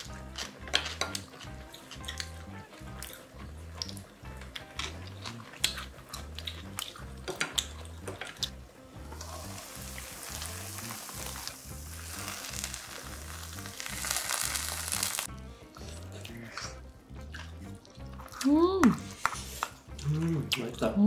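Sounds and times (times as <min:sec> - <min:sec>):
rice sizzling in hot pan: 0:09.1 - 0:15.3.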